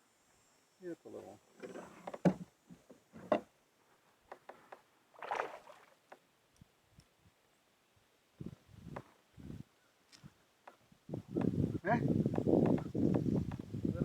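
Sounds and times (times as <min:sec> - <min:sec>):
water splashing: 0:05.2 - 0:06.0.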